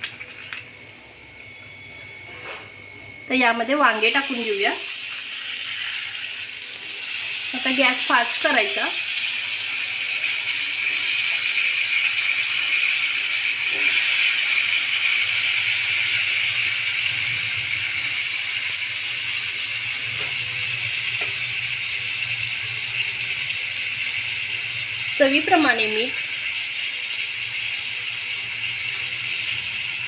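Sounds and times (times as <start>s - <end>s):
vegetables sizzling in hot oil: 3.2s - 30.0s.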